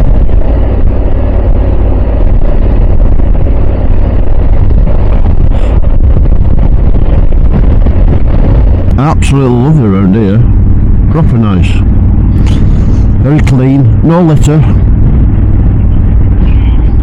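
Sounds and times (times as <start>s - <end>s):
motorcycle engine running: 0.0s - 17.0s
wind on microphone: 0.0s - 17.0s.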